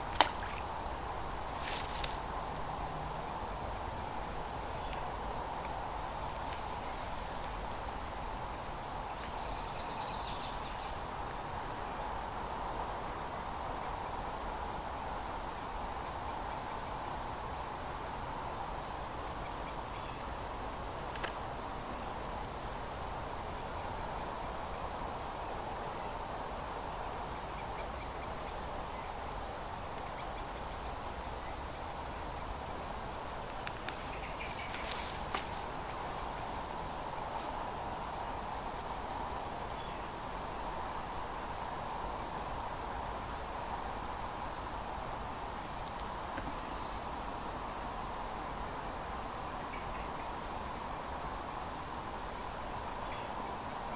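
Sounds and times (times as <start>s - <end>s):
flowing river water: 0.0s - 8.8s
small birds chirping: 30.6s - 38.6s
faint clicks: 33.5s - 35.7s.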